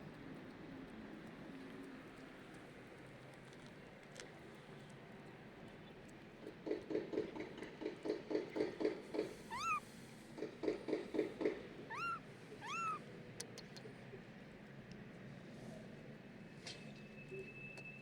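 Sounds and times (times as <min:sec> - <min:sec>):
kitten meowing: 0:09.5 - 0:09.9, 0:11.9 - 0:13.0.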